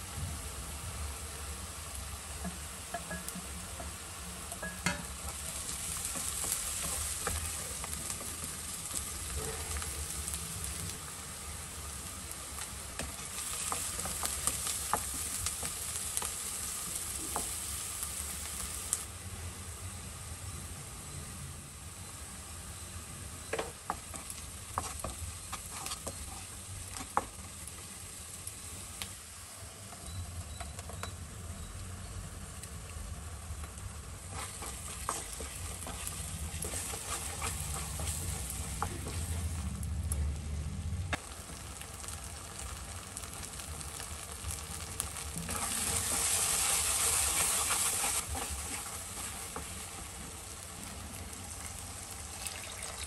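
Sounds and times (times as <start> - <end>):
masala sizzling in a pan: 0.0 - 53.0
spatula tapping on a pan: 2.4 - 5.1
spatula scraping a pan: 23.9 - 27.3, 34.2 - 39.5.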